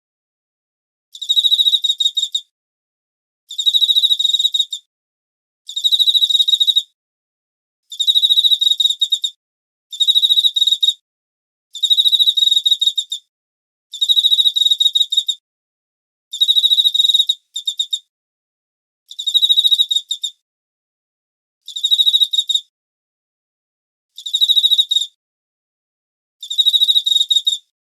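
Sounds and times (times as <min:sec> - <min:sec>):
cricket chirping: 0:16.4 - 0:18.0.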